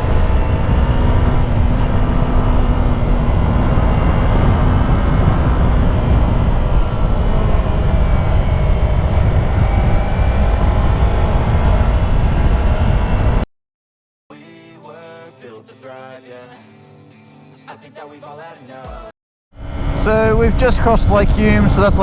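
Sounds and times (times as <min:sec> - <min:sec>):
motorcycle engine humming: 0:00.0 - 0:13.4, 0:19.6 - 0:22.0
wind roar on microphone: 0:00.0 - 0:13.4, 0:19.6 - 0:22.0.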